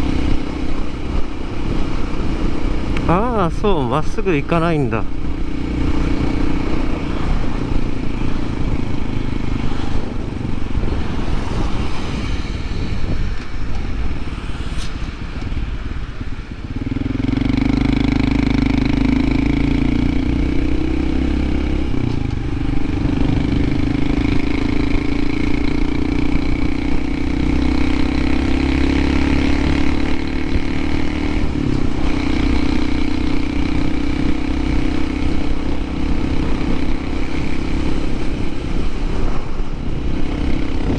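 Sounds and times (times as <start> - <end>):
motorcycle engine running: 0.0 - 40.9
wind noise: 0.0 - 40.9.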